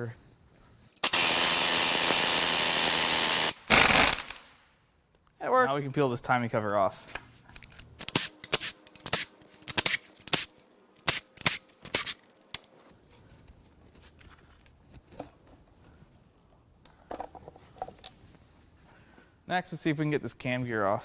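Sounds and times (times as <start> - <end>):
sharp snaps and cracks: 3.6 - 4.6.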